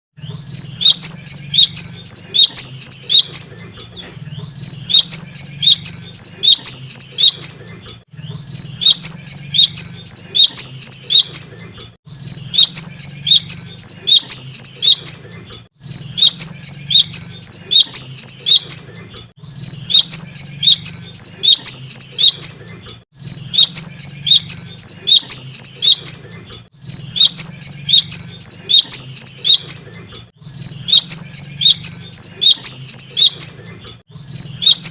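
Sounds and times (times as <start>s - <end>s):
bird singing quick high chirps: 0.5s - 3.6s, 4.6s - 7.6s, 8.5s - 11.5s, 12.3s - 15.2s, 15.9s - 18.9s, 19.6s - 22.6s, 23.2s - 26.2s, 26.9s - 29.8s, 30.6s - 33.6s, 34.3s - 34.9s.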